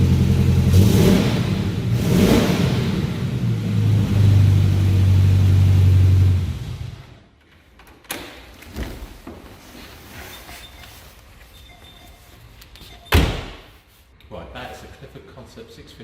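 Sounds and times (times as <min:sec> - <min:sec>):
sports car engine revving: 0:00.0 - 0:07.1.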